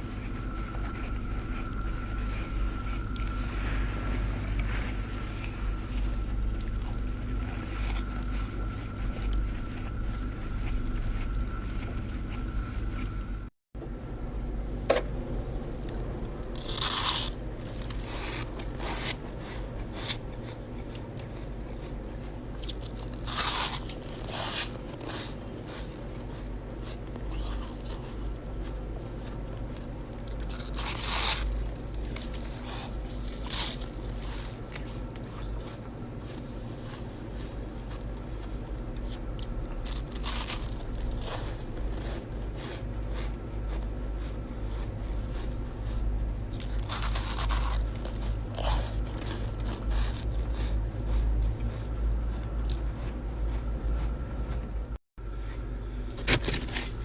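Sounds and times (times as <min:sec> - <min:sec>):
low hum: 0:00.0 - 0:57.0
ice crunching: 0:16.6 - 0:19.1, 0:30.4 - 0:34.5, 0:39.8 - 0:41.4, 0:46.7 - 0:48.1.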